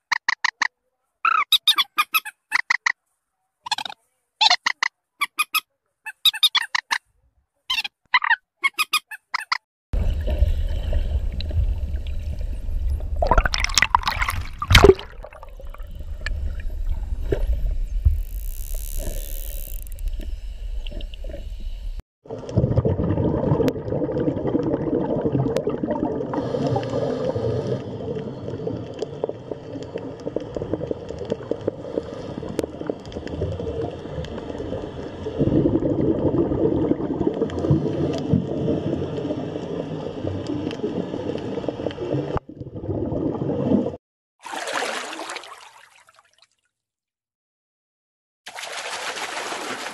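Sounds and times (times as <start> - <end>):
bird squawks: 0.2 - 3.0, 3.7 - 7.0
rumbling underwater noise: 10.0 - 44.0
underwater bubbling and gurgling: 10.0 - 44.0.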